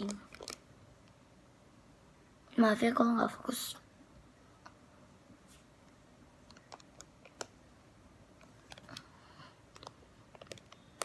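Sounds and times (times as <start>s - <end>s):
small plastic items clicking: 0.0s - 0.6s, 6.4s - 7.6s, 8.4s - 9.1s, 9.7s - 11.0s
soft rustle: 5.3s - 6.0s.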